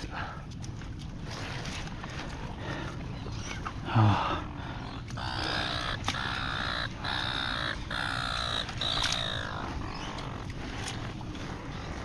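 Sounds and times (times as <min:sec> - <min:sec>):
bird calling: 0:04.8 - 0:10.6.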